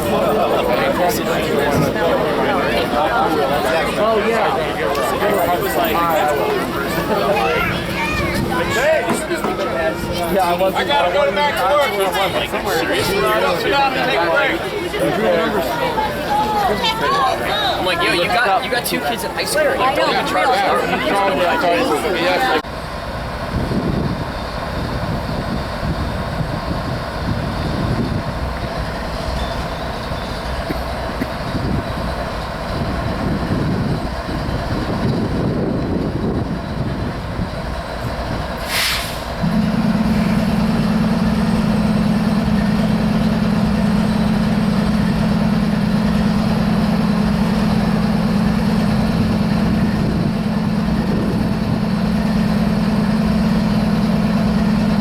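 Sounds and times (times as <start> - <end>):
diesel locomotive engine drone: 0.0 - 55.0
air hiss: 38.6 - 39.4.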